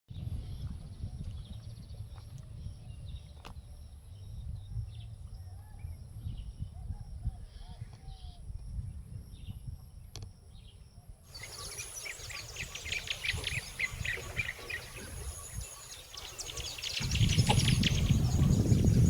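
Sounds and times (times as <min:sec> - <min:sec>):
small birds chirping: 0:11.3 - 0:19.0.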